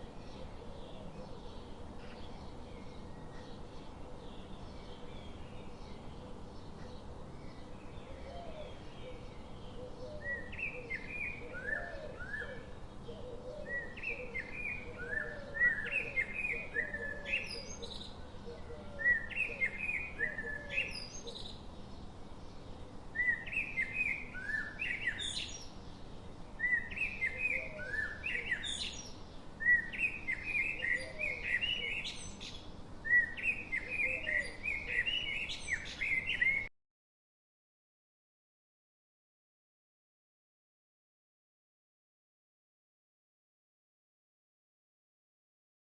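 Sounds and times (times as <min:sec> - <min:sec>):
faint steady hiss: 0:00.0 - 0:36.7.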